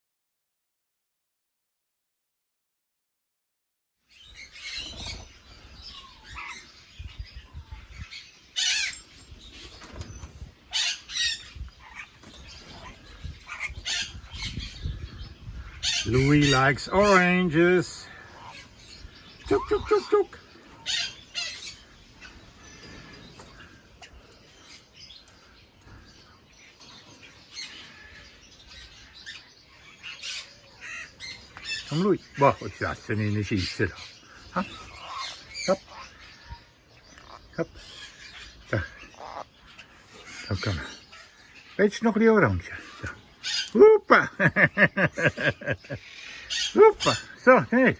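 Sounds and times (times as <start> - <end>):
parrots chirping and squawking: 4.1 - 47.9.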